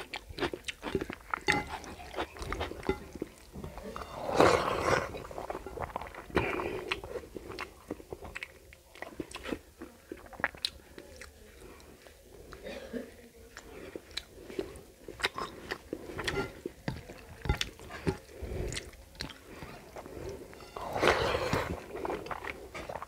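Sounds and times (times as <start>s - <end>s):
wet chewing and lip smacks: 13.6s - 20.4s.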